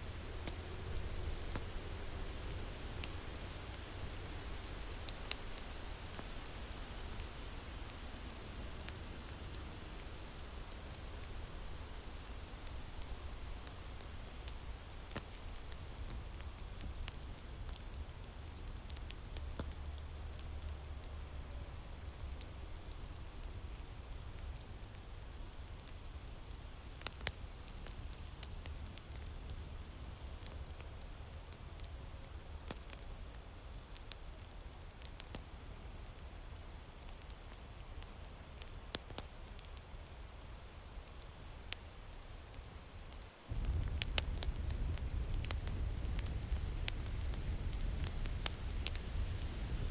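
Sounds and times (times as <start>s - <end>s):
wood fire crackling: 0.0s - 49.9s
wind rumbling: 43.5s - 49.9s.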